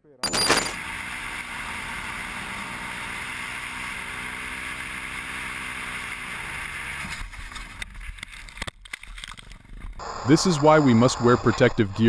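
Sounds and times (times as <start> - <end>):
engine hum: 0.2 - 8.7
wind and road noise: 0.5 - 11.6.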